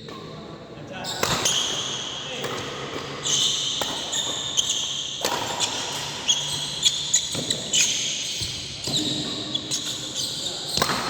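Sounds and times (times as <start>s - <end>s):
racket hitting shuttlecock: 1.2s - 10.0s, 10.7s - 11.0s
shoes squeaking on floor: 3.2s - 10.9s.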